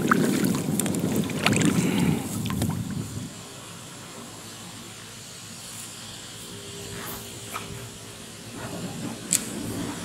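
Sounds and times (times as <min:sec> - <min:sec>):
paddle dipping and dripping in water: 0:00.0 - 0:03.0
sharp water splashes: 0:00.0 - 0:03.1
wind rumble on microphone: 0:00.0 - 0:03.4, 0:08.5 - 0:10.0
steady hiss: 0:00.0 - 0:10.0.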